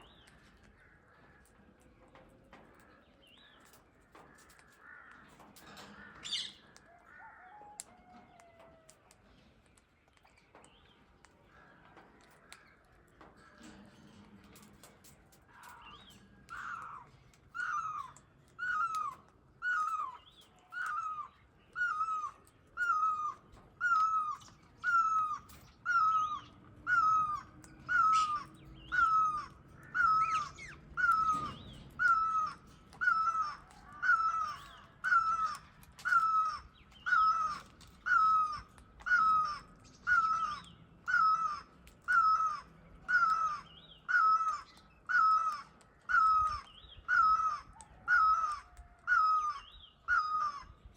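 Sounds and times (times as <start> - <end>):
bird calling: 15.5 - 50.9.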